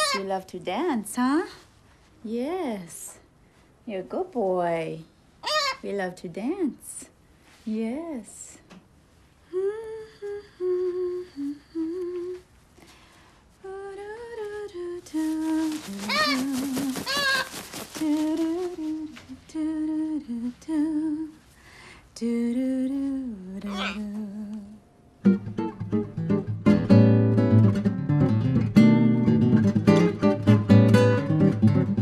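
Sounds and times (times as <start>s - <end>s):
woman humming: 9.5s - 12.4s, 22.2s - 24.8s.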